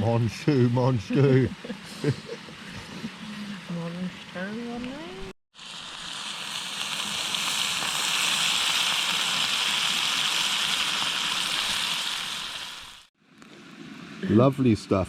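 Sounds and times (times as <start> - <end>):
food sizzling in a frying pan: 4.8 - 13.1.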